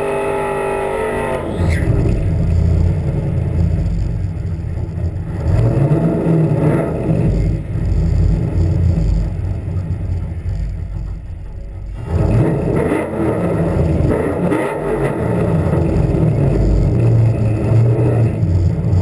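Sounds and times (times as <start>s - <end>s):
car engine running hard: 0.0s - 19.0s.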